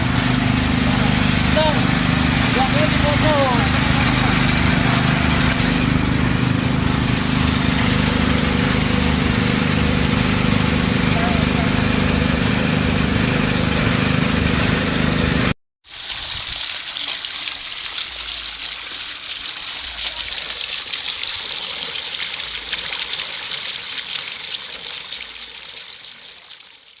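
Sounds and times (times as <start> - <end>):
small engine running: 0.0 - 15.6
water gushing and splashing: 0.0 - 27.0.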